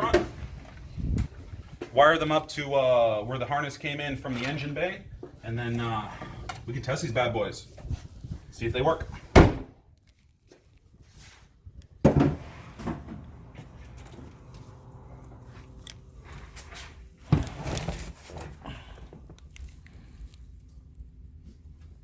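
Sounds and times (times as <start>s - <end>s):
rustling handling noise: 10.0s - 22.0s.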